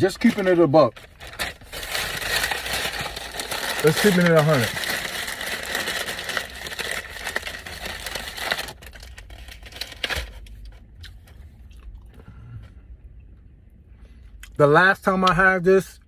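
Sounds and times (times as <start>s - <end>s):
bag crinkling: 0.0s - 10.5s.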